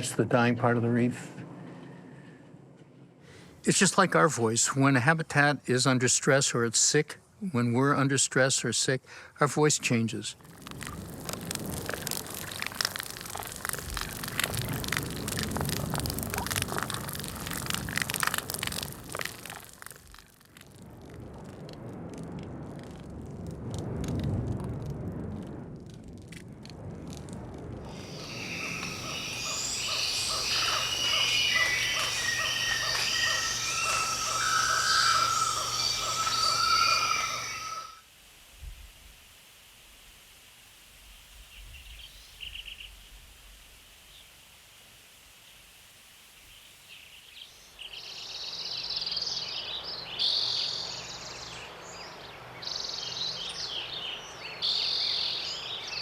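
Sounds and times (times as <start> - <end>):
steady hiss: 3.2 - 56.0
underwater crackle of clicks: 10.4 - 27.8
insects buzzing: 27.9 - 38.0
birds singing: 28.0 - 38.0, 46.9 - 56.0.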